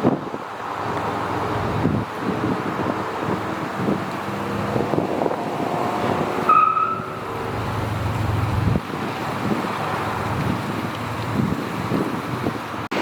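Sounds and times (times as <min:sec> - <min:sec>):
vehicle engines idling: 0:00.0 - 0:13.0
wind buffeting microphone: 0:00.0 - 0:13.0
low rumble: 0:07.2 - 0:08.8.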